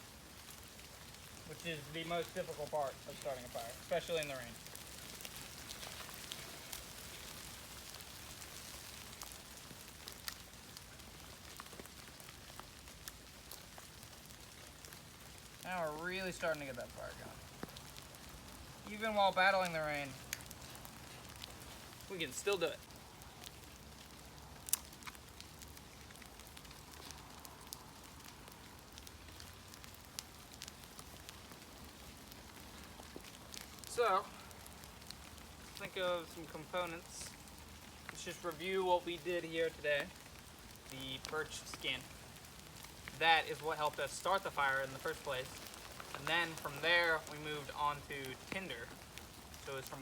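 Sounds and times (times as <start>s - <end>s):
campfire crackling and popping: 0.0s - 50.0s
rain pattering: 0.0s - 50.0s.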